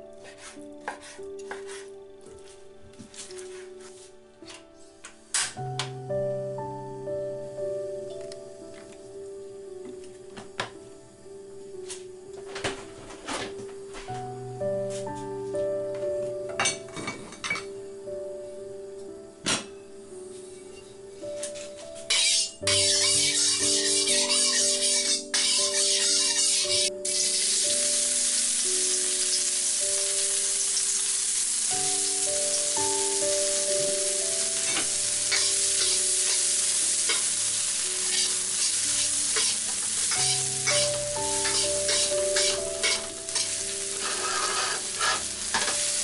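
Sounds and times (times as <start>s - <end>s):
metal spatula scraping a wok: 22.1s - 27.4s, 35.3s - 37.4s, 38.0s - 45.8s
onion and garlic sizzling in oil: 22.1s - 46.0s.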